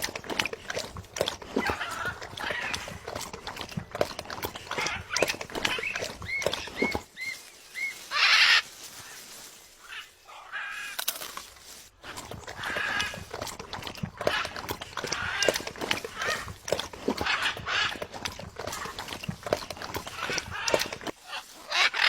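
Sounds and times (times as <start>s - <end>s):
parrot chirping and squawking: 4.8s - 9.2s, 20.2s - 22.0s.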